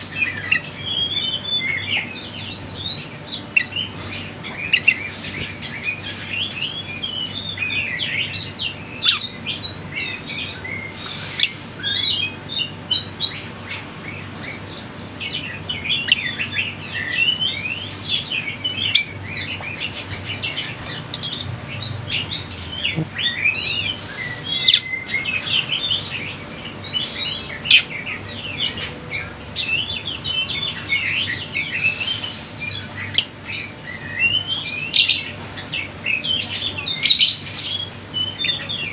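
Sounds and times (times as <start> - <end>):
birds twittering and chirping: 0.0 - 38.9.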